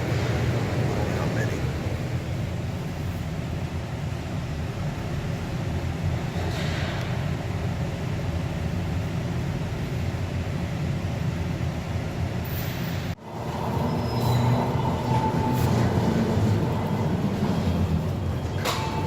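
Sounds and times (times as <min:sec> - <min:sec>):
heavy vehicle rumbling: 0:12.8 - 0:19.0.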